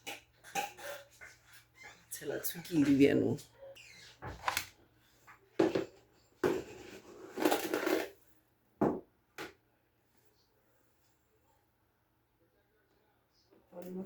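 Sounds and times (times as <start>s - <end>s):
handling knocks and scrapes: 5.6s - 8.2s.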